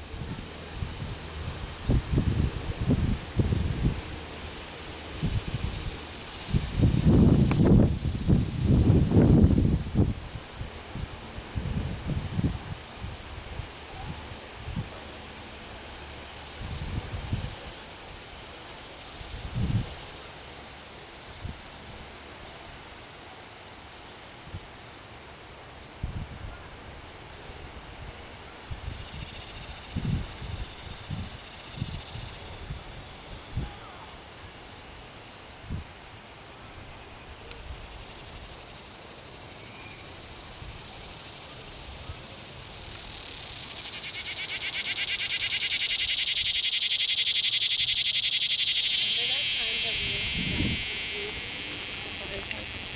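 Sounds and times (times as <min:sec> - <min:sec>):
cicada buzzing: 0:00.0 - 0:17.8, 0:28.8 - 0:33.4, 0:40.0 - 0:52.9.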